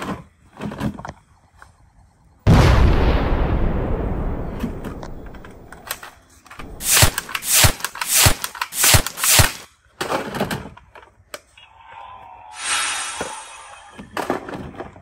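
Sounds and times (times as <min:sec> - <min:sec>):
explosion rumbling: 0:02.5 - 0:06.0
loud hissing bursts: 0:06.6 - 0:09.7, 0:12.6 - 0:13.8.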